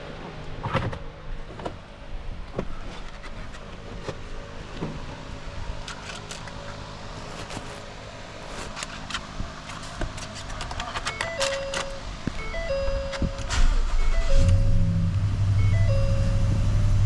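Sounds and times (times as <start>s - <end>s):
pickup engine idling: 11.6s - 17.0s.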